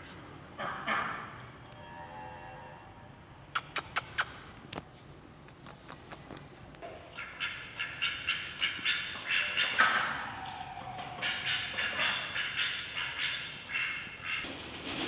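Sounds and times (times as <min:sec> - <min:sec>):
young birds chirping: 0:03.6 - 0:04.6.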